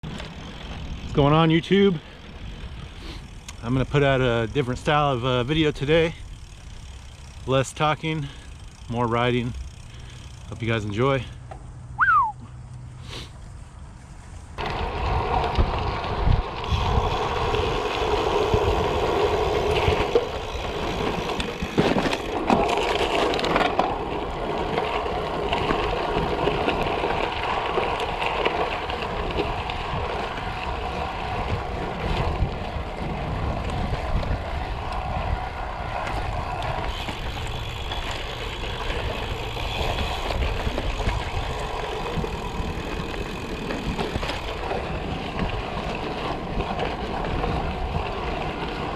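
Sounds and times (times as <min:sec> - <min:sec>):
bike tyres rolling over gravel: 0:00.0 - 0:11.8, 0:13.2 - 0:48.9
wind buffeting microphone: 0:14.6 - 0:48.9.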